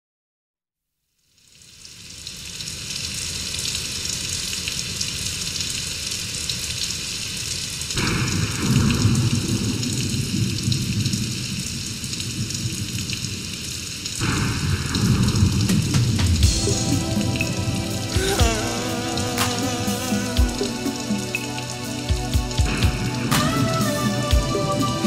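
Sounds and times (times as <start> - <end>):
rain hissing: 1.2 - 25.0.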